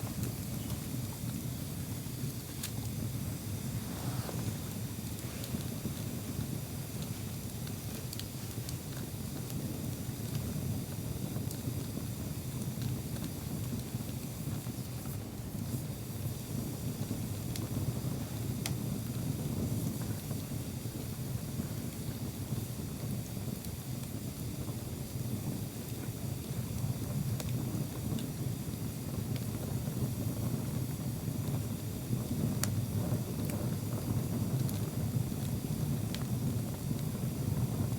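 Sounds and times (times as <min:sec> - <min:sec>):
wood crackling and popping: 0:00.0 - 0:20.3
bonfire rumbling: 0:00.0 - 0:37.9.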